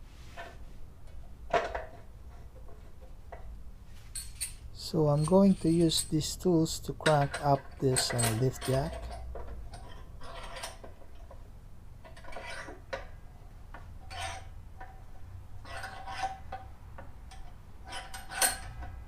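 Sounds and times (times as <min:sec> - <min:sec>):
jack screw metallic clicks and clanks: 0:04.2 - 0:11.4, 0:15.6 - 0:19.0.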